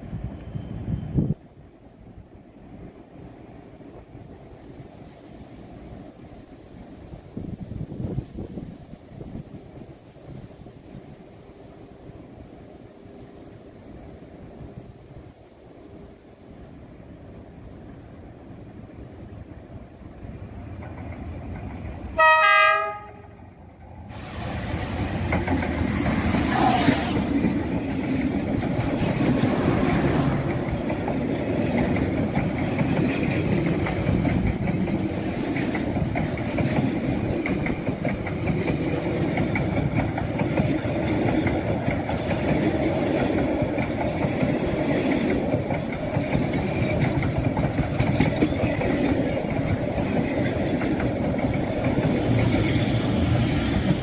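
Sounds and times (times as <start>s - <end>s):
passing train rumble: 0.0s - 54.0s
locomotive horn blast: 22.2s - 23.4s
wheels clattering over rail joints: 23.6s - 54.0s.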